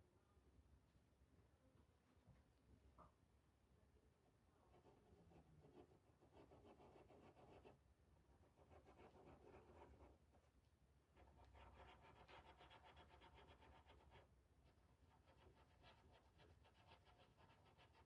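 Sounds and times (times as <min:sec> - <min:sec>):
stencil brush scratching: 0:04.7 - 0:07.8, 0:08.4 - 0:10.2, 0:11.2 - 0:18.0.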